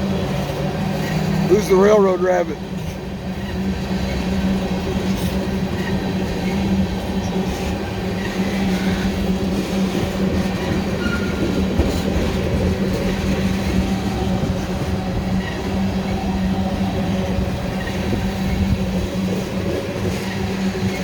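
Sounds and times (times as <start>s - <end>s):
freight train rumbling past: 0.0s - 21.0s
wheels clicking over rail joints: 0.0s - 21.0s.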